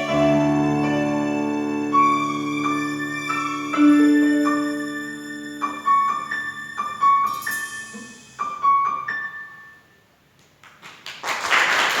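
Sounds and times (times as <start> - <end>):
piano playing slow notes: 0.0 - 10.1
people clapping: 10.4 - 12.0
applause: 10.5 - 12.0.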